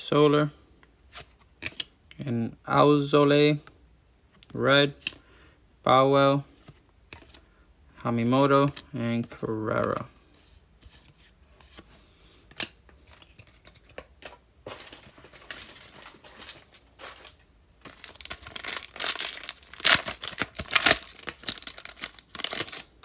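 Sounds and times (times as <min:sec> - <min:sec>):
wrapper tearing and crinkling: 0:14.7 - 0:23.0.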